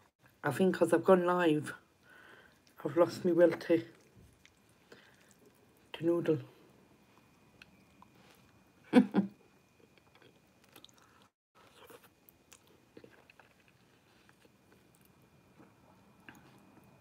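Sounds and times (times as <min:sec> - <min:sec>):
person chewing noodles: 0:03.9 - 0:05.9, 0:07.2 - 0:08.7, 0:09.8 - 0:17.0.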